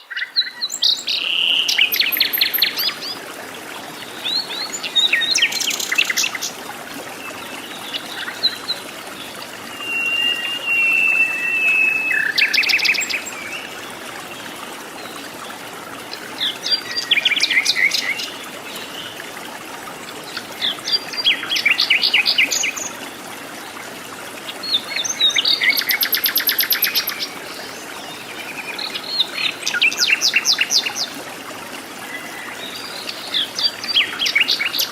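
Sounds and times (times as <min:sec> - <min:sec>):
faint forest background hiss: 0:00.0 - 0:34.9
birds chirping: 0:07.2 - 0:14.0
bird whistle: 0:09.7 - 0:13.0.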